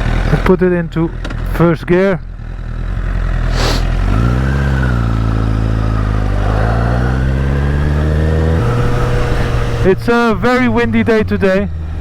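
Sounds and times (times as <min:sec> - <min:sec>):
motorcycle engine pulling away: 0:02.4 - 0:10.6.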